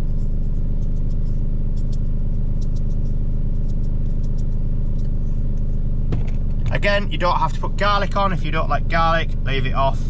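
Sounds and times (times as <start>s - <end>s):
truck engine idling: 6.1s - 10.0s.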